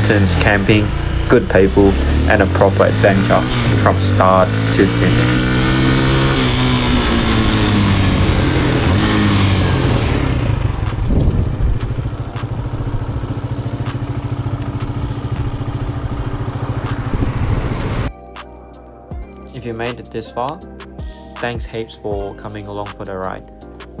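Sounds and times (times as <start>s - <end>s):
motorcycle engine: 0.0s - 18.1s
wind rush: 10.3s - 12.1s, 16.9s - 18.1s.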